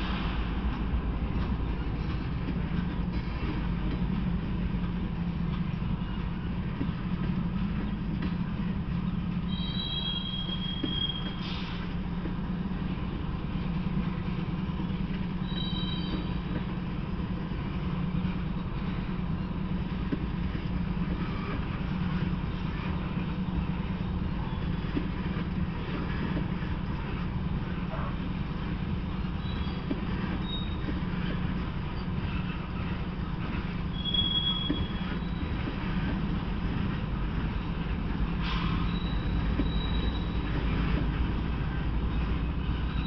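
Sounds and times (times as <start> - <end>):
low drone of train wheels: 0.0 - 43.0
high wheel squeals: 9.4 - 11.9, 15.4 - 16.6, 29.1 - 35.7, 38.4 - 40.8.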